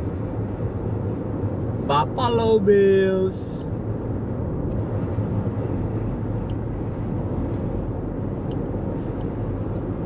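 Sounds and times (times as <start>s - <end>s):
car road and tyre noise: 0.0s - 10.0s.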